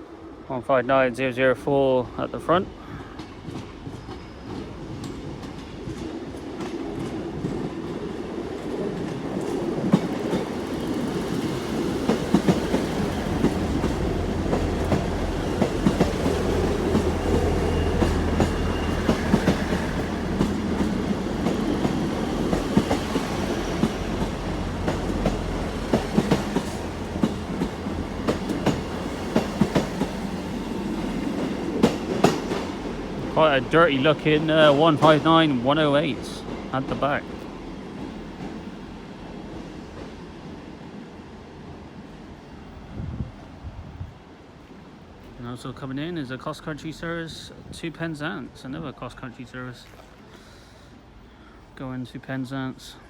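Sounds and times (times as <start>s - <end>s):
train diesel engines humming: 0.0s - 53.0s
train wheels clicking over rail joints: 2.9s - 38.7s.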